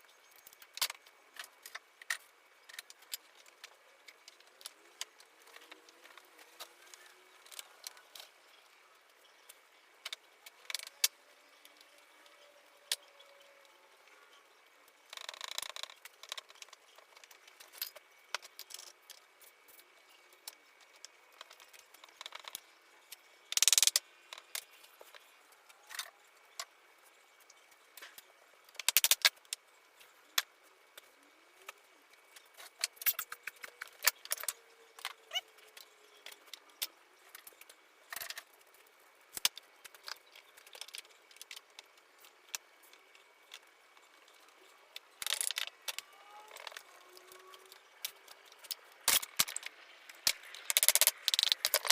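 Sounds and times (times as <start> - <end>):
cluster of clicks: 27.4 - 51.9
wooden parts tapping and knocking: 30.3 - 38.6, 39.3 - 51.9.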